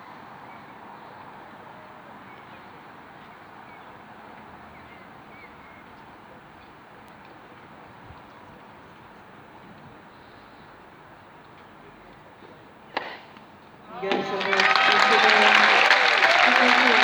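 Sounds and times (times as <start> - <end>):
crowd murmur: 13.9 - 17.0.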